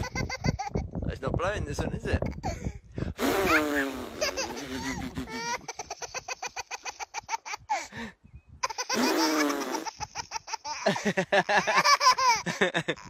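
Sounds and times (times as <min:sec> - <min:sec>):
baby belly laughing: 0:00.0 - 0:01.0, 0:02.1 - 0:07.9, 0:08.6 - 0:13.0
man laughing: 0:03.2 - 0:07.2, 0:10.8 - 0:13.0.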